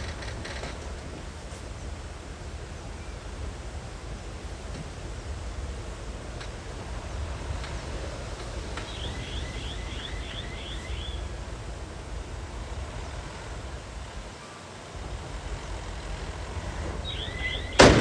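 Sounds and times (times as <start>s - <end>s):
bird chirping: 8.5s - 11.4s, 16.8s - 18.0s.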